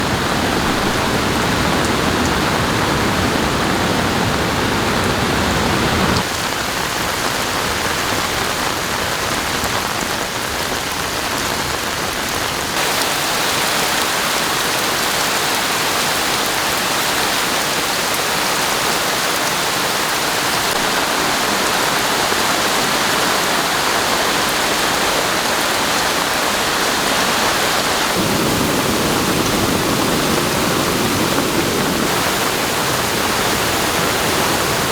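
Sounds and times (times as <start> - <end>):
falling water hiss: 12.8 - 34.9.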